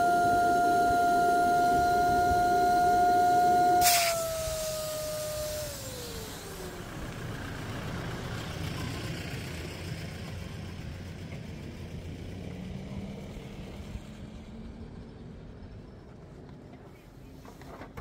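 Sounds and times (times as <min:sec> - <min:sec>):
electric air pump whine: 0:00.0 - 0:08.2
low mechanical hum: 0:00.0 - 0:18.0.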